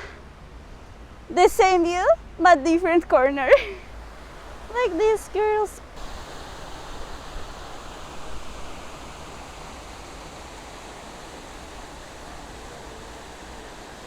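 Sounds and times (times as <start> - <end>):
waterfall rushing: 3.9 - 14.0.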